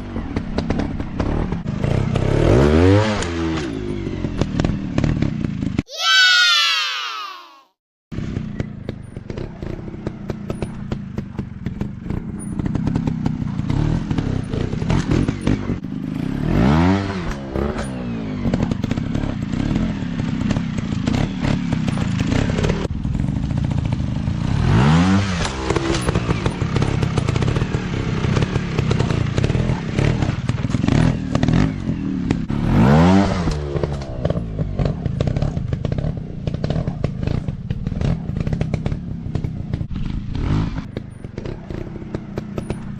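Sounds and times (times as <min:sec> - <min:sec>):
dirt bike engine revving: 0:00.6 - 0:06.8, 0:08.2 - 0:42.9.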